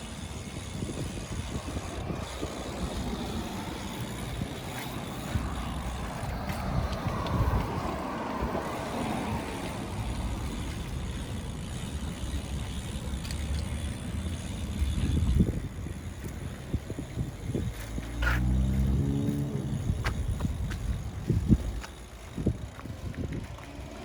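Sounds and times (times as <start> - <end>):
bike tyre noise: 0.0 - 24.0
wind rumble on microphone: 0.0 - 24.0.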